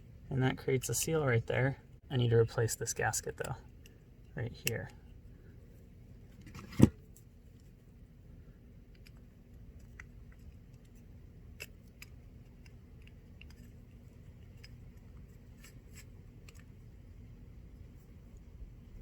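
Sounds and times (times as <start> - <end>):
low background rumble: 0.0 - 19.0
small parts clicking and scraping: 8.8 - 17.3.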